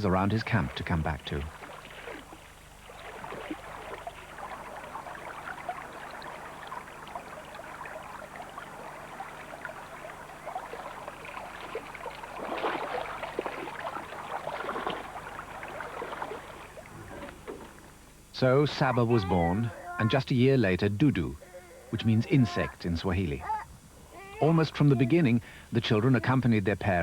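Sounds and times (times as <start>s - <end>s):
water running and splashing: 0.5s - 18.0s.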